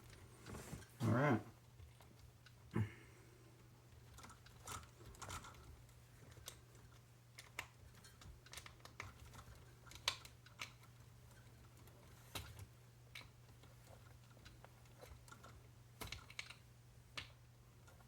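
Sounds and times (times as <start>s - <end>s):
faint low hum: 0.0s - 18.0s
small parts and tools clicking: 3.9s - 18.0s.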